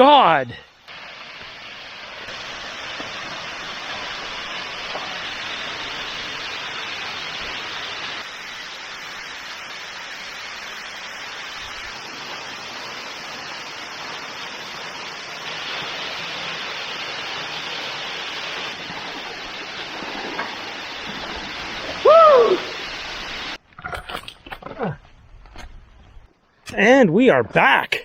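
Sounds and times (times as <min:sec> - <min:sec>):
waterfall rushing: 0:00.9 - 0:23.6.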